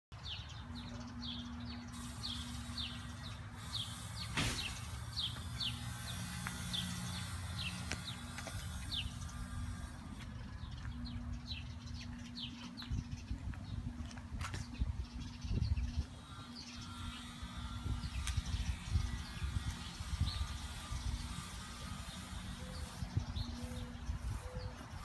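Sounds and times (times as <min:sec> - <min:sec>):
bird chirping: 0:14.6 - 0:25.0.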